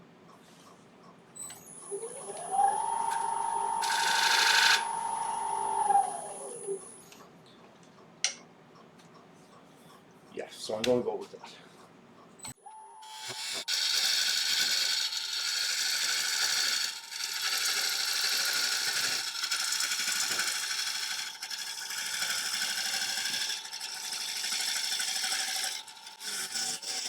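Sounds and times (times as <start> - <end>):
lathe whine: 1.6 - 7.2, 12.7 - 27.0
tool cutting wood on a lathe: 1.9 - 7.1, 13.0 - 27.0.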